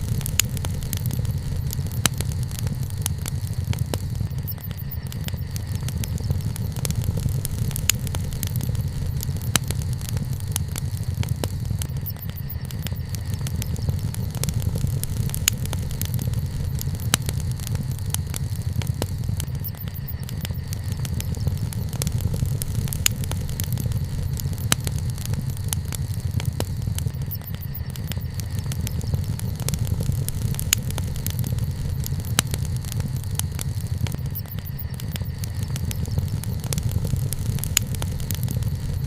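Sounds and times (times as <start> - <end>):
low rumble: 0.0 - 39.0
wood fire crackling and popping: 0.0 - 39.0.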